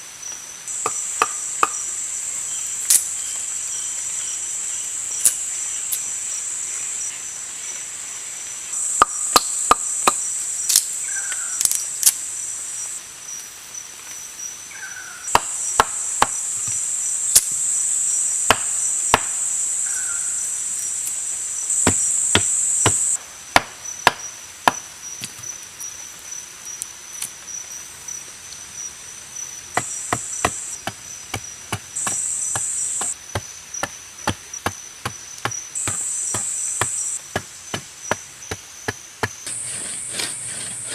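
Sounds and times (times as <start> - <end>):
high insect buzz: 0.2 - 40.9
blade chopping into wood: 15.3 - 16.8, 18.5 - 19.4, 21.7 - 25.4, 29.8 - 40.9.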